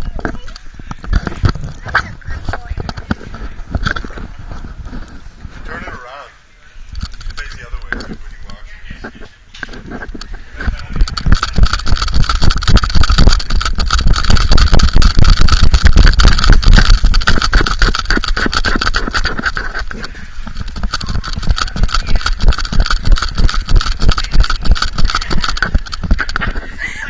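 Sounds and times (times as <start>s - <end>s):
camera rubbing and knocking: 0.0s - 6.0s, 6.9s - 27.0s.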